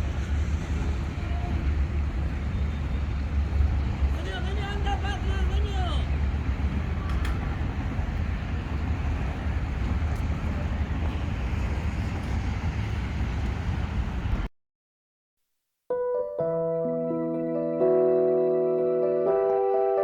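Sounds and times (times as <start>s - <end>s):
low outdoor rumble: 0.0s - 14.5s.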